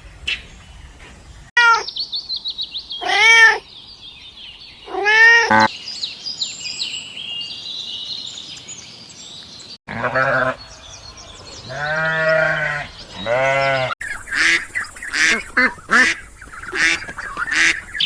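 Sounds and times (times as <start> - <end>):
cat meowing: 3.0 - 3.6.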